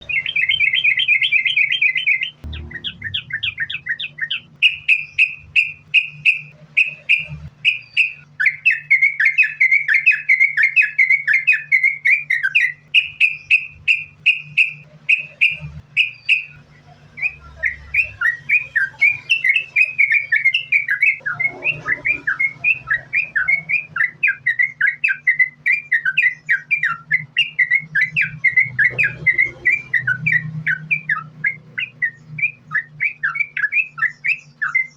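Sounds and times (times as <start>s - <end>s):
bird chirping song: 0.0s - 34.9s
low hum: 2.2s - 7.6s.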